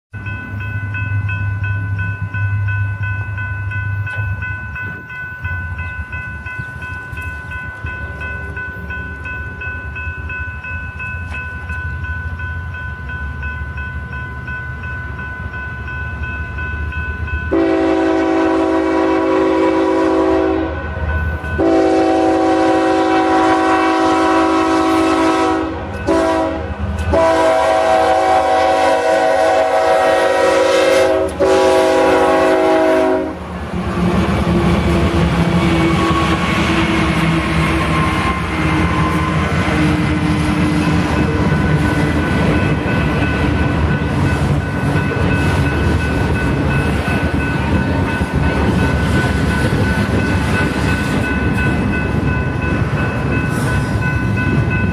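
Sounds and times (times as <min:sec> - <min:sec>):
crossing bell ringing: 0:00.1 - 0:54.9
diesel locomotive rumble: 0:00.2 - 0:54.9
locomotive horn blasts: 0:17.5 - 0:20.8, 0:21.6 - 0:33.4.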